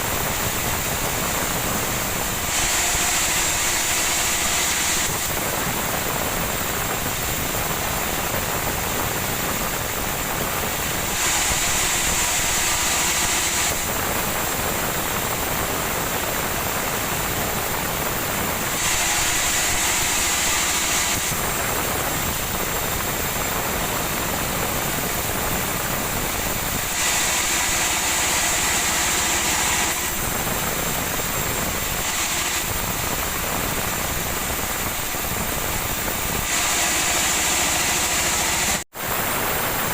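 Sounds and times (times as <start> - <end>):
high-pitched wood cutting noise: 0.0 - 6.4, 10.8 - 14.4, 18.6 - 23.4, 25.0 - 38.9
woodworking machine running: 0.0 - 39.9.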